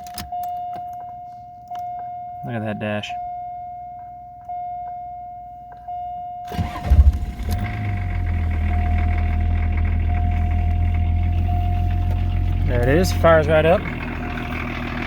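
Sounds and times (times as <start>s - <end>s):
diesel engine idling: 6.5s - 15.0s
starter cranking engine: 6.5s - 15.0s
high electronic warning tone: 8.8s - 14.6s.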